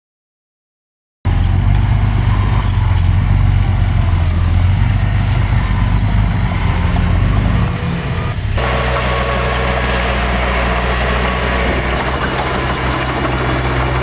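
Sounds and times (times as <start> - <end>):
high metallic squeaks and clinks: 1.3 - 13.5
bulldozer diesel engine running: 1.3 - 14.0.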